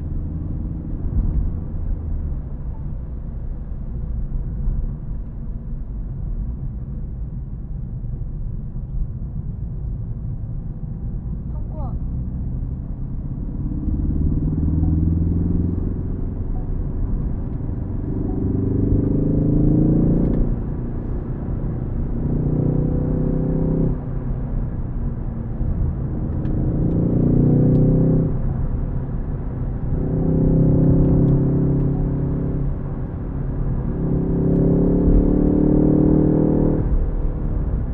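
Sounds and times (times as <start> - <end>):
car engine revving: 12.1 - 37.9.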